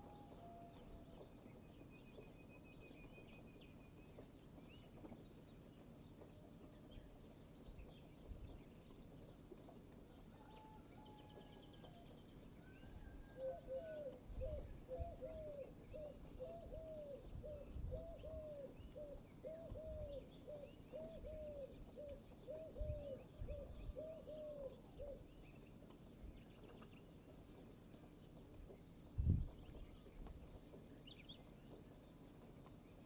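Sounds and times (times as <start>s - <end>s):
bird cooing: 13.3s - 25.2s.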